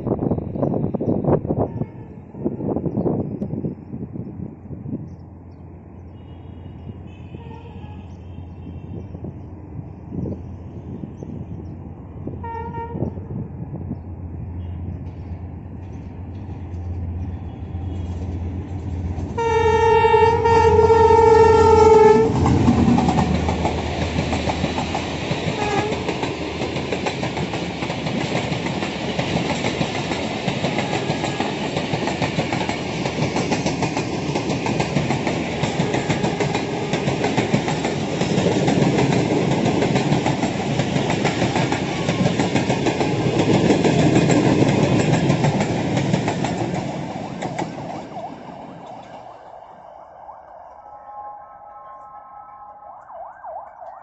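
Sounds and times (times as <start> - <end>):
train coaches rumbling and rattling: 0.0 - 50.3
diesel locomotive engine humming: 0.0 - 54.0
train horn blast: 1.6 - 2.7, 6.2 - 9.3, 12.3 - 13.6, 17.3 - 18.6, 19.2 - 23.9, 25.4 - 26.3, 30.7 - 31.8, 35.6 - 37.0, 41.8 - 42.6, 50.7 - 53.5.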